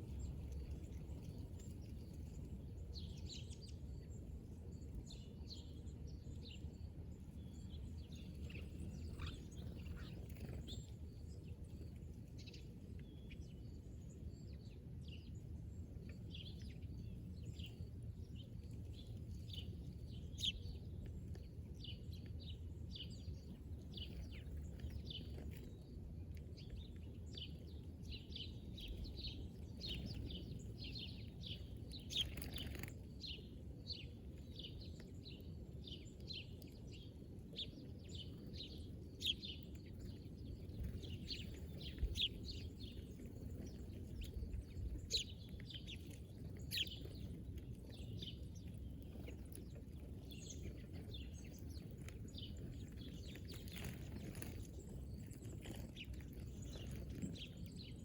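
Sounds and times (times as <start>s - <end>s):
low background rumble: 0.0s - 58.0s
birds chirping: 26.6s - 36.4s.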